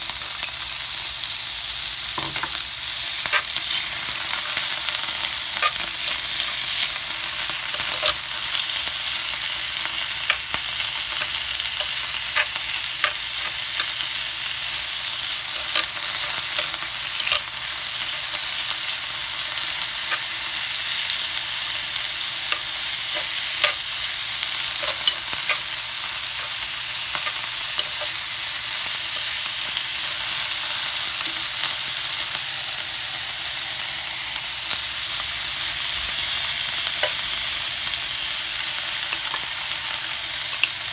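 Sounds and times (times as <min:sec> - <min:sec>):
food sizzling on griddle pan: 0:00.0 - 0:40.9
metal tongs scraping pan: 0:03.2 - 0:08.2, 0:09.4 - 0:18.6, 0:19.4 - 0:20.6, 0:21.2 - 0:30.4.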